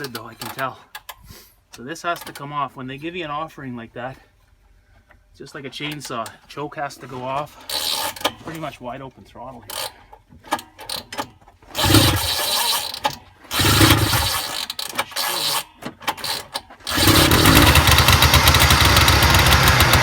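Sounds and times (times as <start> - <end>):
pull-start cord: 9.7 - 20.0
two-stroke engine running fast: 11.8 - 12.3, 13.6 - 14.4, 16.9 - 20.0.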